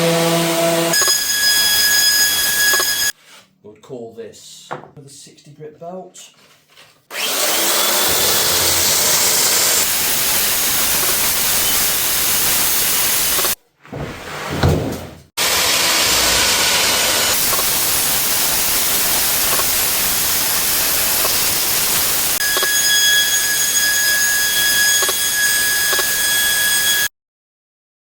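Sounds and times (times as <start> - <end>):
belt sander on wood: 0.0 - 1.0, 7.2 - 13.6, 15.4 - 27.0
low thump: 13.9 - 15.2.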